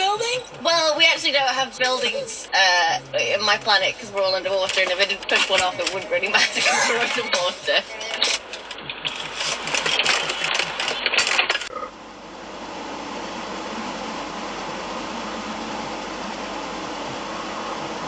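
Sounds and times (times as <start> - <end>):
car interior road noise: 0.0 - 18.0
rapid rattling clicks: 3.5 - 11.8.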